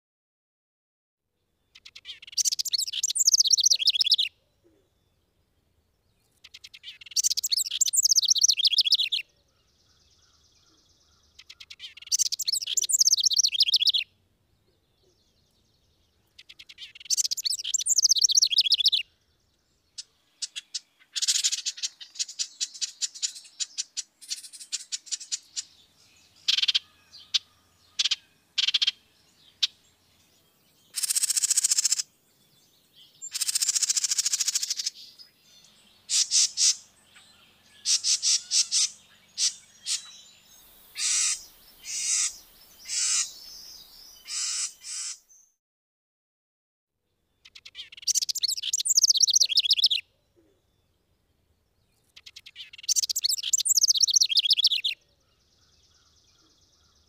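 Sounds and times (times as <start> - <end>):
bird trilled song: 1.4 - 45.6, 47.3 - 57.0.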